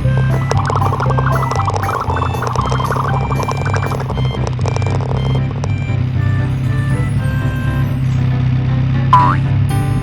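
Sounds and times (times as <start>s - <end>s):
upbeat children's song music: 0.0s - 8.4s.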